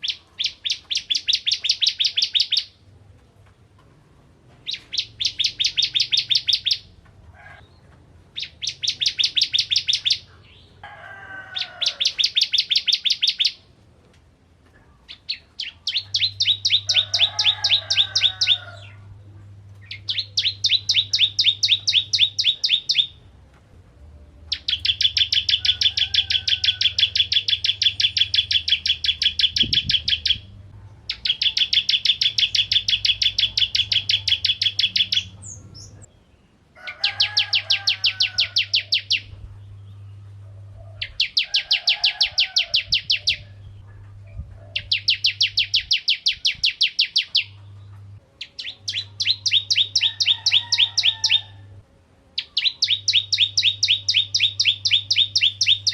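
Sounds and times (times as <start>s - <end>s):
songbird singing rapid trills: 0.0s - 2.7s, 4.7s - 6.9s, 8.4s - 10.7s, 11.9s - 13.6s, 15.1s - 18.6s, 19.8s - 23.2s, 24.5s - 36.2s, 37.4s - 40.2s, 44.7s - 47.6s, 48.4s - 51.5s, 52.4s - 55.9s.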